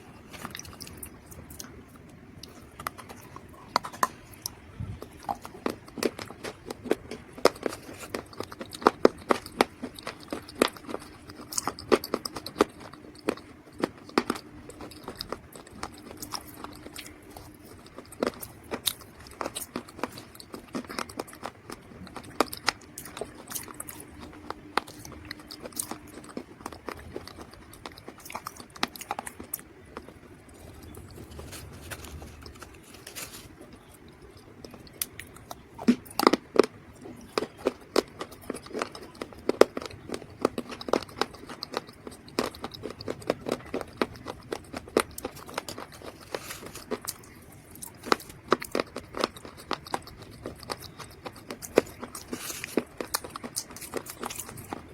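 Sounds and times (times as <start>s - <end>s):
crunching and chewing dry mud: 0.0s - 54.9s.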